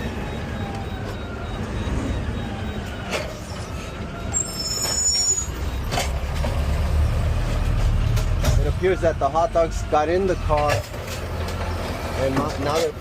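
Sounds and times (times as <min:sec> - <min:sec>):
high squeal: 0:03.3 - 0:05.8.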